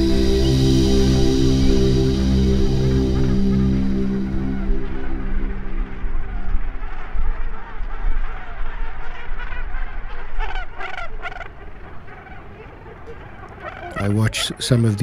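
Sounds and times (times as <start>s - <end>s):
low steady rumble: 0.0s - 8.6s.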